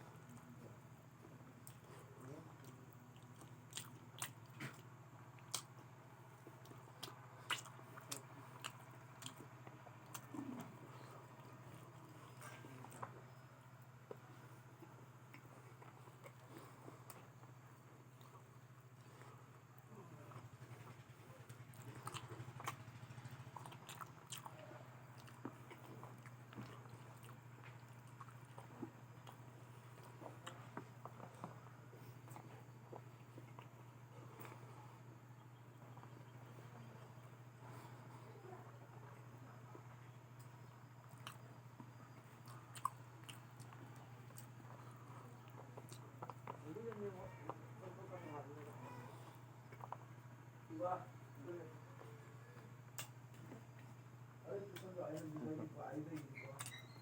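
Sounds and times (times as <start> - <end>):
low steady hum: 0.0 - 57.0
person chewing food: 0.0 - 57.0
mouth clicks and smacks: 52.9 - 54.0, 56.2 - 57.0.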